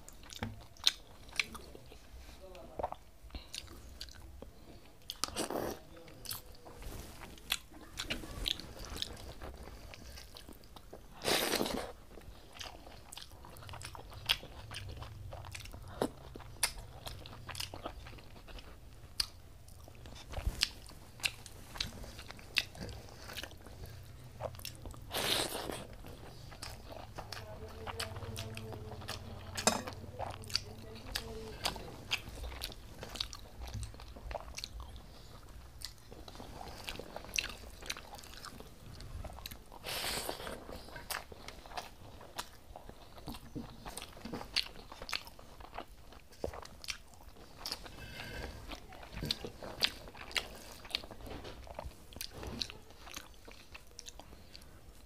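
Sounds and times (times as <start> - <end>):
chewing food: 0.0 - 55.0.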